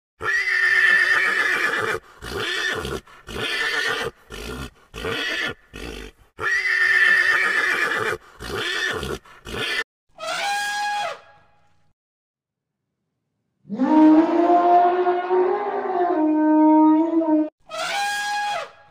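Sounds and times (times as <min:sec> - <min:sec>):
horses neighing: 0:00.2 - 0:09.8.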